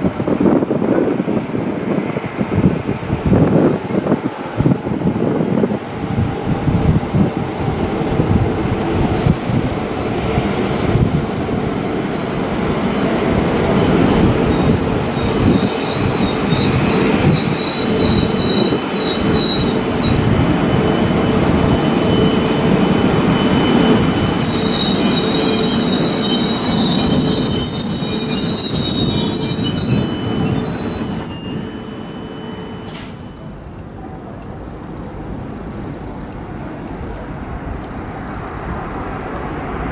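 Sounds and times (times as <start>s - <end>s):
train wheels rushing on rails: 0.0s - 39.9s
high-pitched wheel squeals: 10.0s - 33.5s.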